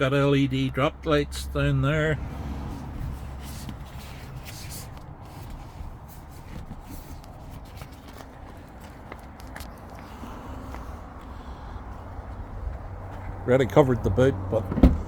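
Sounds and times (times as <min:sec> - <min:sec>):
light footsteps: 0:02.8 - 0:13.8.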